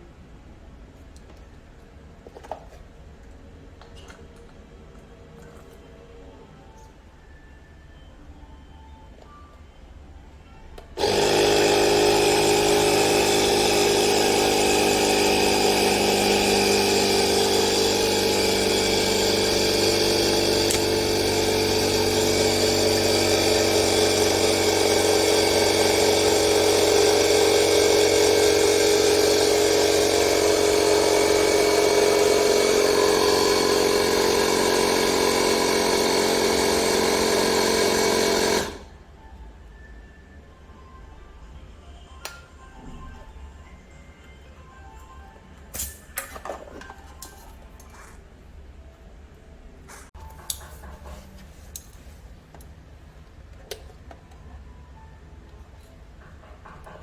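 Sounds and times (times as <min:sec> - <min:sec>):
air compressor motor humming: 0:11.0 - 0:39.0.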